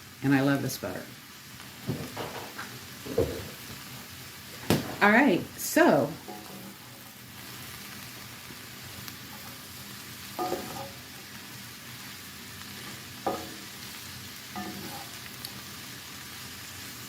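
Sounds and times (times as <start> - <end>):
cabbage sizzling in a skillet: 0.0 - 17.0
stirring clatter in a pan: 6.2 - 7.6, 8.8 - 11.5, 12.8 - 13.9, 14.5 - 15.6.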